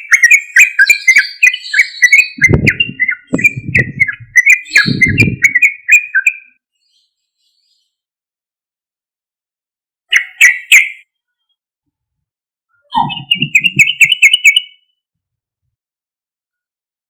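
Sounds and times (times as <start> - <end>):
bulbul singing: 0.0 - 7.6, 10.1 - 11.1, 12.8 - 15.0.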